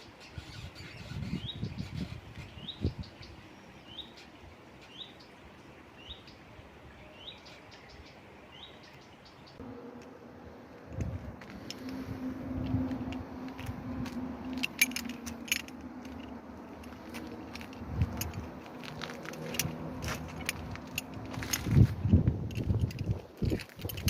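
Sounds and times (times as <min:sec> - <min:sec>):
metallic clinks and rattles: 0:14.4 - 0:24.0.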